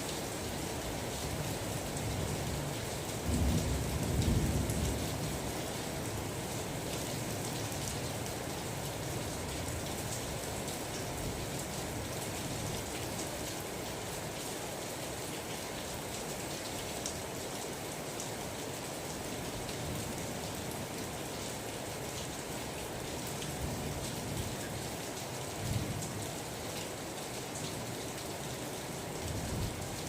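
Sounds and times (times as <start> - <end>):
steady rain falling: 0.0 - 30.0
low rumble of thunder: 3.2 - 5.7.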